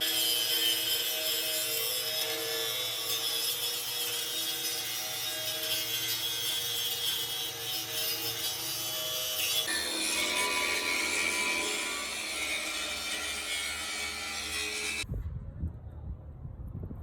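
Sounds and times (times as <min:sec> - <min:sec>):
machine grinding hiss with whine: 0:09.7 - 0:15.0.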